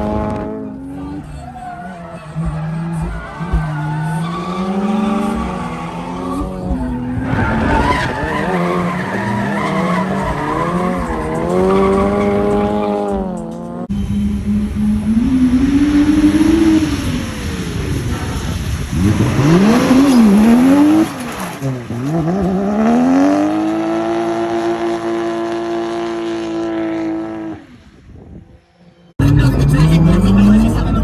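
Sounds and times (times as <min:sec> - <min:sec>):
car engine revving: 0:00.0 - 0:28.0, 0:29.0 - 0:31.0
tyres squealing: 0:00.7 - 0:13.7, 0:17.4 - 0:24.1.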